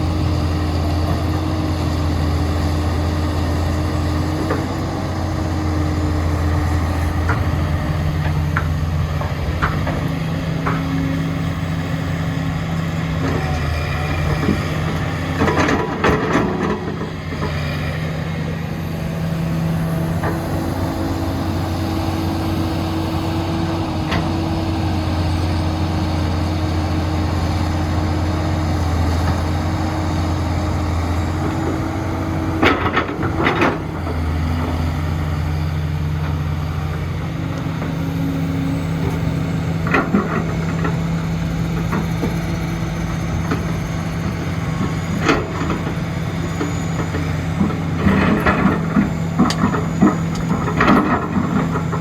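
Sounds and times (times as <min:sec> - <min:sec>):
heavy diesel engine running: 0:00.0 - 0:52.0
clatter and banging: 0:14.3 - 0:17.6, 0:32.5 - 0:34.2.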